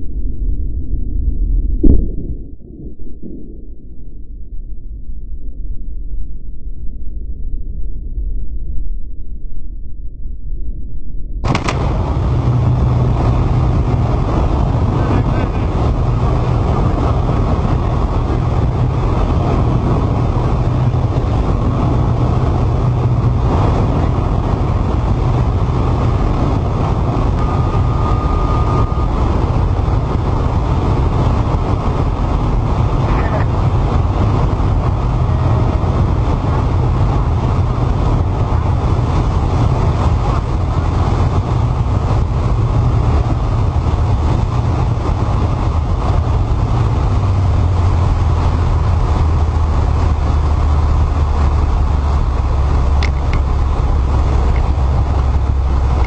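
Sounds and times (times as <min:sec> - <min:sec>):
light aircraft engine drone: 0:11.4 - 0:56.0
brief tone: 0:27.3 - 0:29.6.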